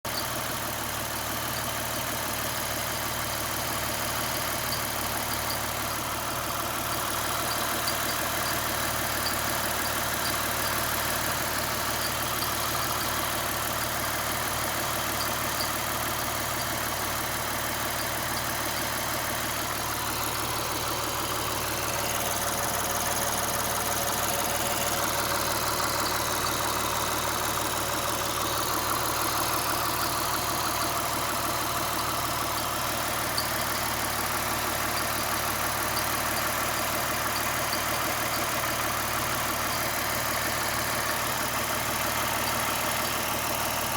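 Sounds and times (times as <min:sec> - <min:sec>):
car engine idling: 0:00.0 - 0:43.9
high chirping tick from belt: 0:03.8 - 0:21.1, 0:32.5 - 0:43.9.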